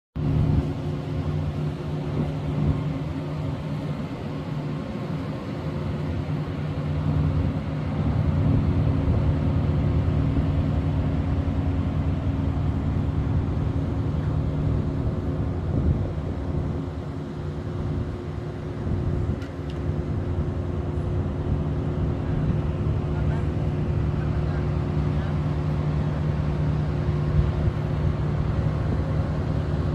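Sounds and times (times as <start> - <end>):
boat engine droning: 0.2 - 29.9.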